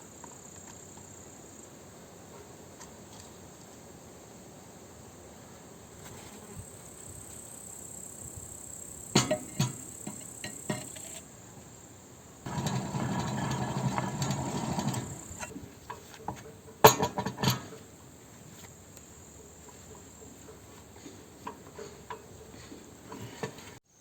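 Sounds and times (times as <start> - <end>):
sharp metallic clanks: 9.1 - 11.2, 12.5 - 17.8
dense metal rattling: 9.2 - 11.2, 12.5 - 15.5.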